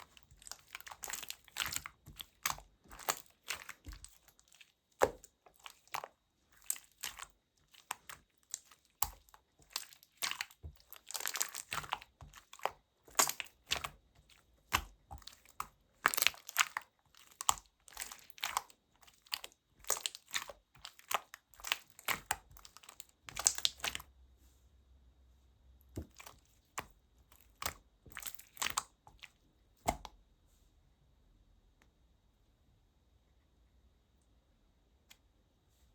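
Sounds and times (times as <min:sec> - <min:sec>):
slime squished by hand: 0:00.0 - 0:24.1, 0:25.9 - 0:30.2.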